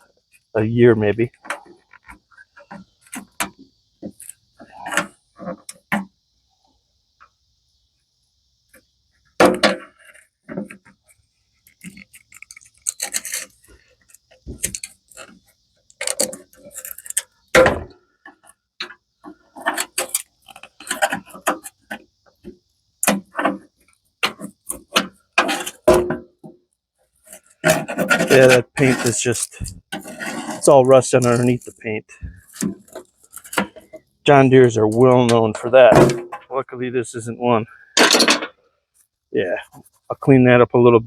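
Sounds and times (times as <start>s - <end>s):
short scraping: 27.6s - 32.6s.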